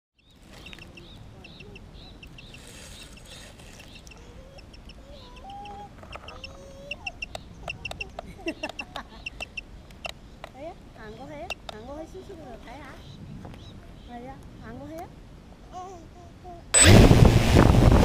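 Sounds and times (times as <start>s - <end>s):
birds chirping: 0.2s - 14.8s
sharp clicks: 5.6s - 10.6s.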